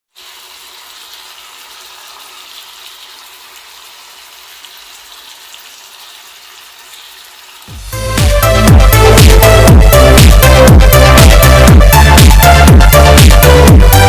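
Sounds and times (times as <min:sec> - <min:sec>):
fish sizzling in hot oil: 0:00.1 - 0:08.0.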